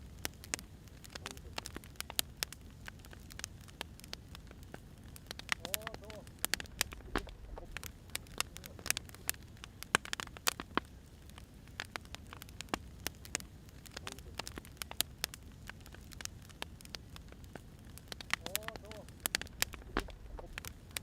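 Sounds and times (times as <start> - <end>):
wood fire crackling: 0.0 - 21.0
low steady rumble: 4.4 - 9.7, 18.4 - 21.0.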